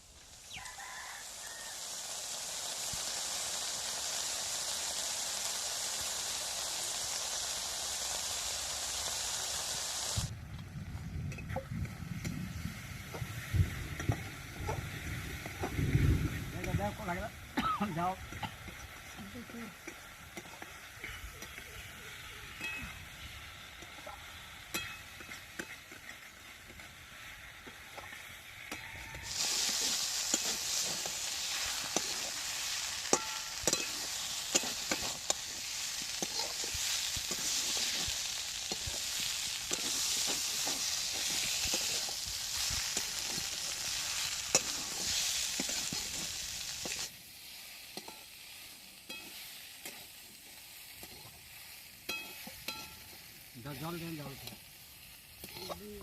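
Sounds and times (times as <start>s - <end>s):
food sizzling in hot oil: 0.0s - 56.0s
spatula scraping pan: 27.6s - 47.1s, 55.4s - 56.0s.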